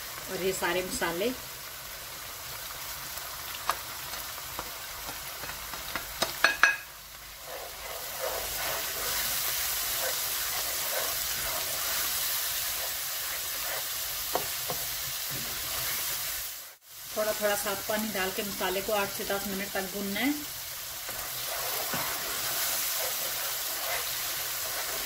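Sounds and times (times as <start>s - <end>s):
masala sizzling in oil: 0.0s - 25.0s
spatula stirring: 4.6s - 16.8s, 18.8s - 25.0s.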